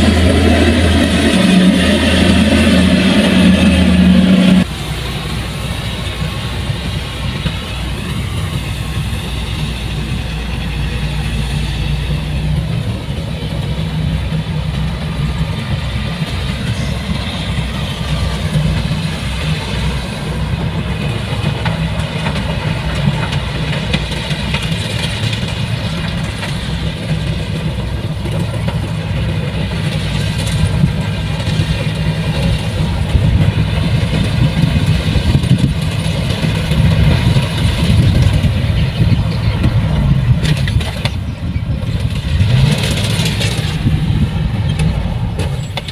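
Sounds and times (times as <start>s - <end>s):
heavy machine engine running: 0.0s - 45.9s.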